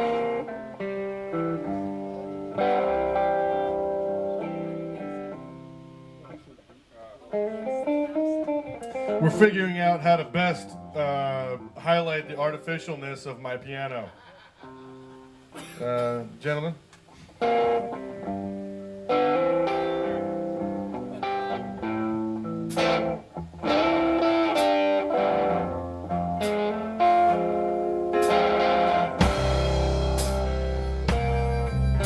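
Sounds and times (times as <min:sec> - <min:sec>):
guitar holding notes: 0:00.0 - 0:13.8, 0:14.6 - 0:32.0
deep bass line: 0:28.2 - 0:32.0
drum or cymbal hits: 0:28.2 - 0:32.0.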